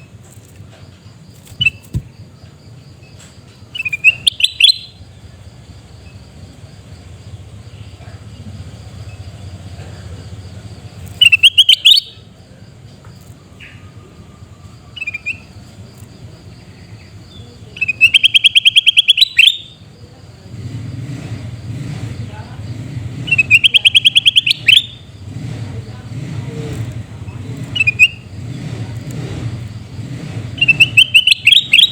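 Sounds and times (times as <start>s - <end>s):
bird harsh screaming calls: 1.6s - 2.0s, 3.8s - 5.0s, 11.2s - 12.2s, 17.8s - 19.8s, 23.2s - 25.1s, 30.5s - 31.9s.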